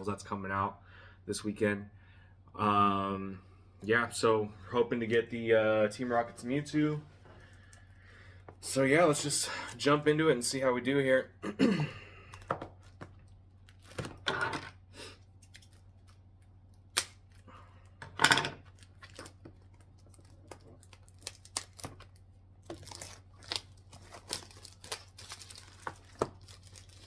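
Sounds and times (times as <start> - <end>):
plastic wrap crinkling and tearing: 13.5 - 14.2, 18.6 - 27.0.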